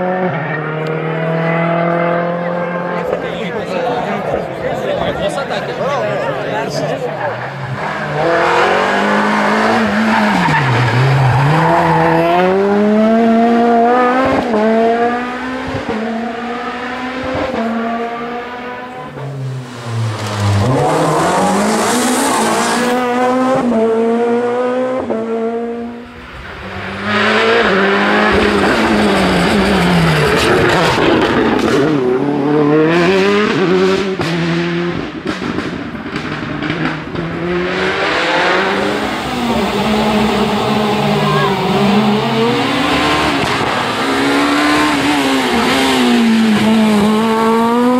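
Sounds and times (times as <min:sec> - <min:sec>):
rally car engines revving: 0:00.0 - 0:47.9.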